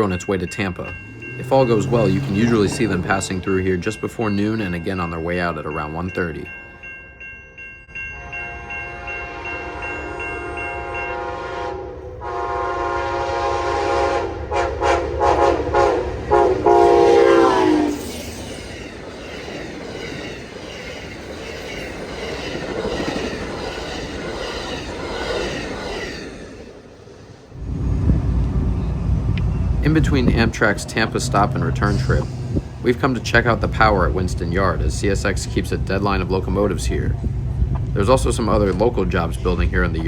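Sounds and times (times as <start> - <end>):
train air horn blasts: 8.1 - 18.1.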